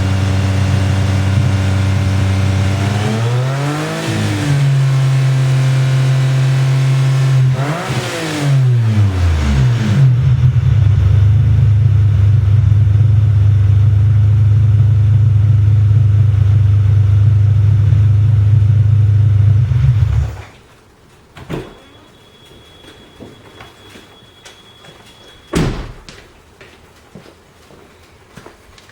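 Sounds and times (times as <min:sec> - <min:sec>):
car engine idling and revving: 0:00.0 - 0:20.4.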